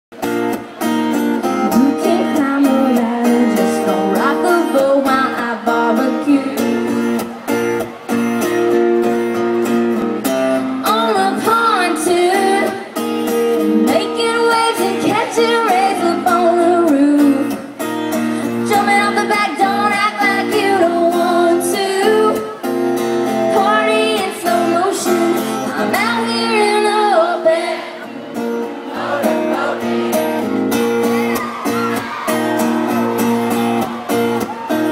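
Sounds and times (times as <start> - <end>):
strummed acoustic guitar: 0.1 - 34.9
woman singing: 1.6 - 7.0, 10.8 - 13.0, 13.6 - 17.8, 18.4 - 22.6, 23.3 - 28.1.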